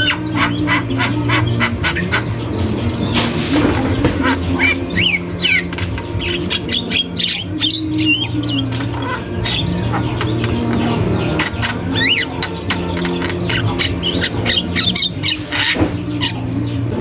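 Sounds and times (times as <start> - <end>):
myna squawking and whistling: 4.2 - 17.0.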